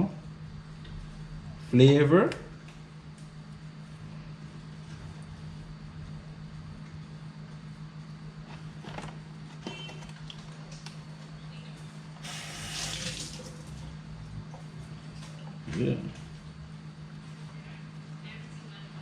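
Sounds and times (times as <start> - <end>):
steady low hum: 0.0 - 19.0
water running: 12.2 - 13.9.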